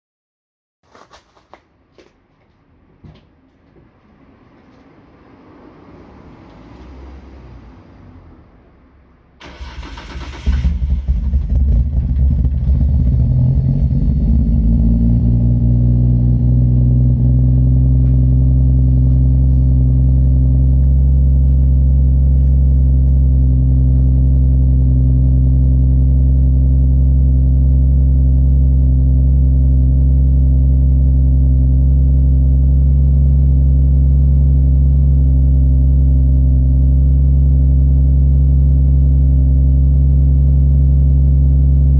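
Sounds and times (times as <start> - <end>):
car engine idling: 8.7 - 41.9.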